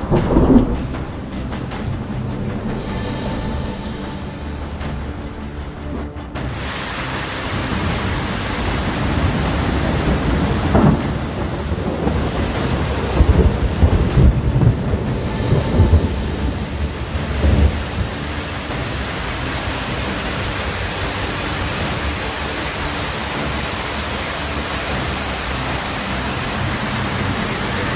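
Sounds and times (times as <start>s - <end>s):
thunderclap cracking: 0.0s - 22.3s
heavy rain falling: 0.0s - 27.9s
thunder rumbling: 0.0s - 27.9s.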